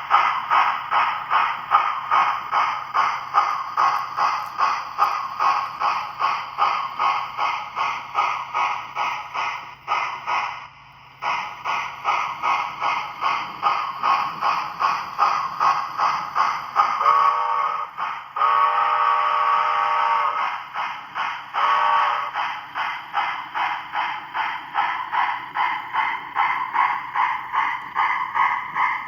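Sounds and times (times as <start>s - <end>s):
steam exhaust chuffs: 0.0s - 29.0s
steam whistle blasts: 17.0s - 20.5s, 21.6s - 22.4s.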